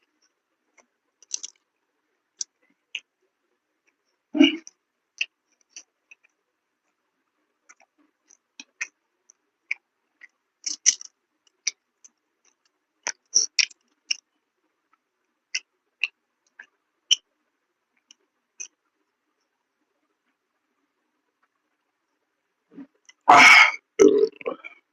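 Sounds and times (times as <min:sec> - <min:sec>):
person chewing: 0:01.2 - 0:01.6, 0:09.7 - 0:11.8.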